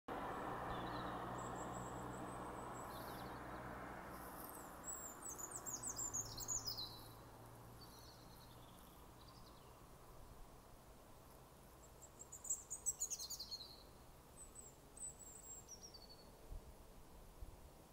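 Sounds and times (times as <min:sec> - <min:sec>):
small birds calling: 0:00.7 - 0:03.6, 0:04.2 - 0:07.2, 0:11.7 - 0:16.4.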